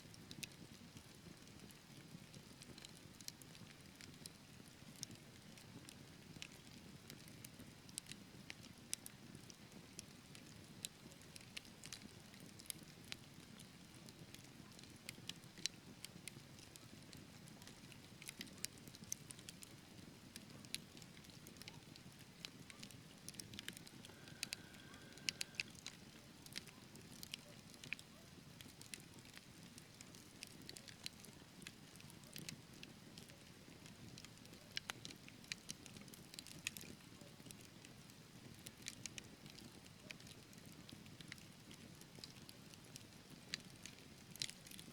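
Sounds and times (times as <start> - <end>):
wood fire crackling and popping: 5.0 - 44.9
thin whistle: 23.8 - 25.8.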